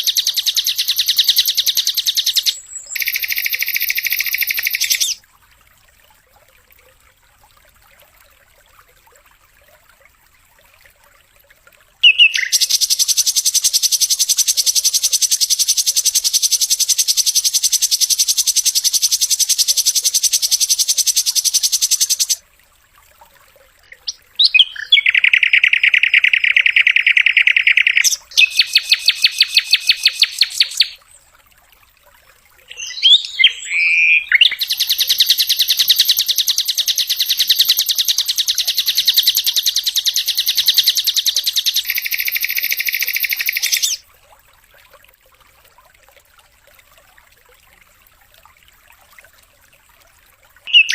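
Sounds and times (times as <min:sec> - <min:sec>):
bird call phrase: 0:12.0 - 0:12.8, 0:32.7 - 0:34.7, 0:50.7 - 0:50.9
flycatcher rapid trills: 0:12.4 - 0:22.4.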